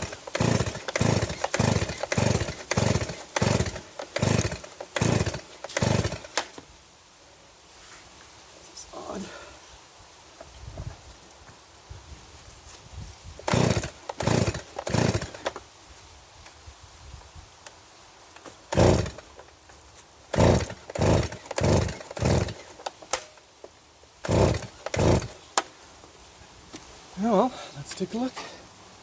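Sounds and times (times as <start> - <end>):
engine turning over: 0.0 - 6.4, 13.4 - 15.6, 18.7 - 19.3, 20.3 - 22.7, 24.2 - 25.3
chainsaw recoil starter cord pulls: 0.0 - 6.6, 13.4 - 15.6, 18.4 - 19.4, 20.3 - 23.4, 24.2 - 25.7.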